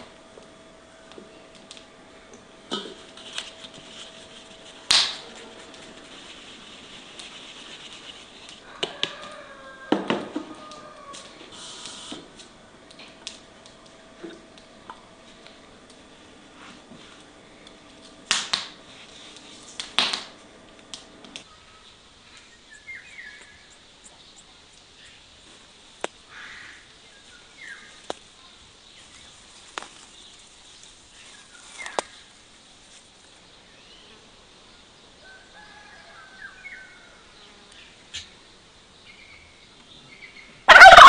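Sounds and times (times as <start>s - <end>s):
wood fire crackling: 0.0s - 8.8s, 10.7s - 21.5s
sharp pops of fire: 4.9s - 5.2s, 18.2s - 18.8s, 19.8s - 21.0s.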